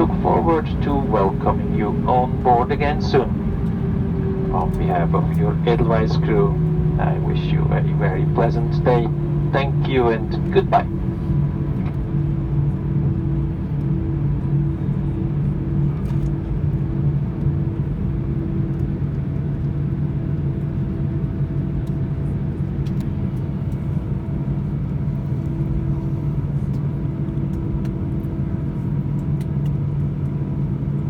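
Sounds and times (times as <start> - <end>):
engines and air system humming: 0.0 - 12.8
airplane cabin rumble: 0.0 - 31.0.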